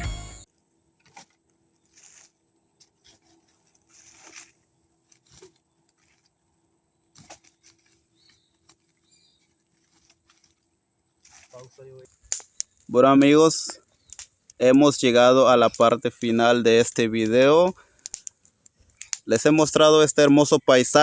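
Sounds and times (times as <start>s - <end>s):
soft rustles: 1.1s - 6.5s, 7.1s - 12.3s
faint clicks: 15.5s - 19.7s.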